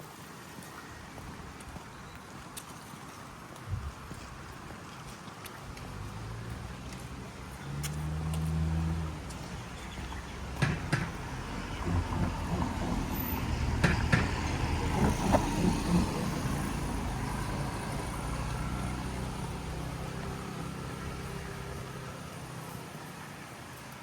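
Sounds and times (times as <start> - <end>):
vehicle engine rumble passing: 5.7 - 23.3
sharp knocks: 10.5 - 15.6.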